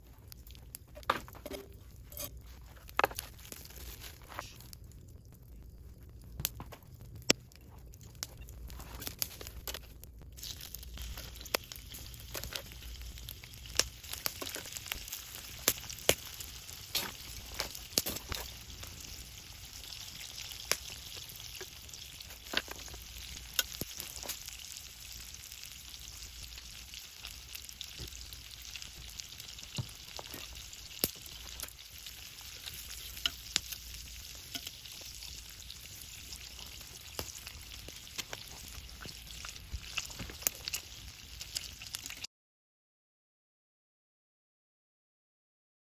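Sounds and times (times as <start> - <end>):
food sizzling in a pan: 10.4 - 42.3.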